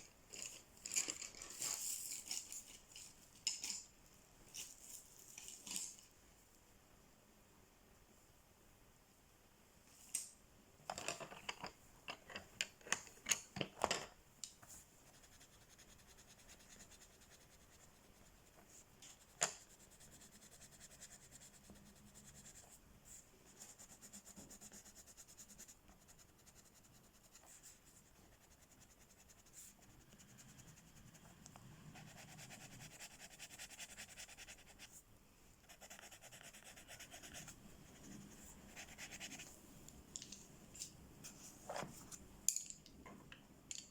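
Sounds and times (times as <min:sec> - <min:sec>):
colouring strokes on paper: 0:14.7 - 0:35.0, 0:35.6 - 0:39.6.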